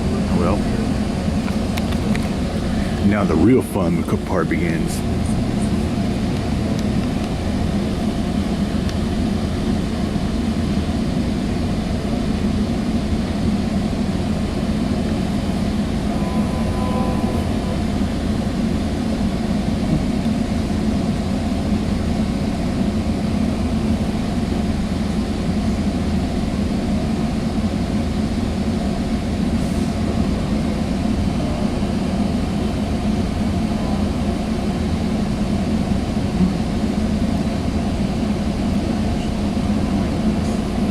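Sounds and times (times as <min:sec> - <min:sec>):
train rumbling: 0:00.0 - 0:40.9.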